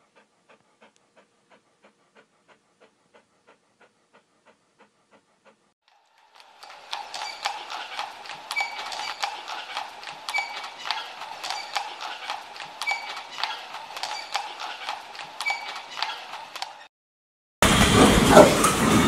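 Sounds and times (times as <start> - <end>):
horse hooves cantering: 6.4 - 16.8.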